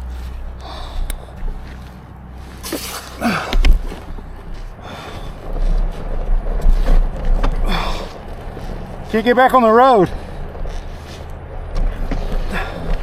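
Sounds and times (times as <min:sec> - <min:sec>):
steady low rumble: 0:00.0 - 0:13.0
person breathing hard: 0:00.3 - 0:06.0, 0:07.6 - 0:08.8, 0:10.1 - 0:13.0.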